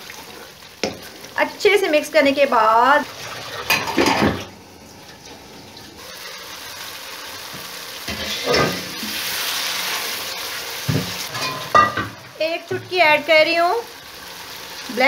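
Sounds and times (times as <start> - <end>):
curry sizzling in a pan: 0.0 - 15.0
lid and spoon knocking pan: 10.9 - 13.0.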